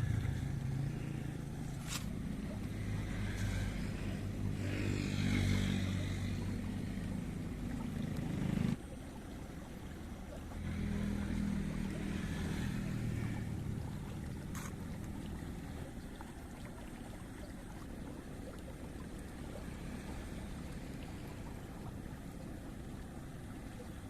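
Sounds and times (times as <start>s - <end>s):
small engine humming: 0.0s - 8.8s, 10.6s - 16.0s.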